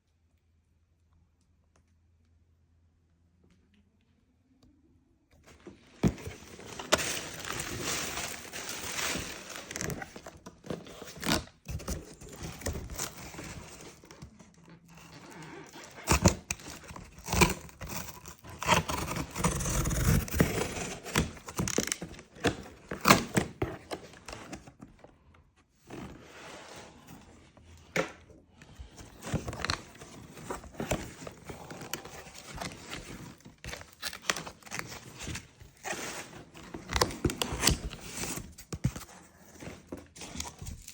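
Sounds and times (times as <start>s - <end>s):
packaging crinkling: 6.1s - 14.1s.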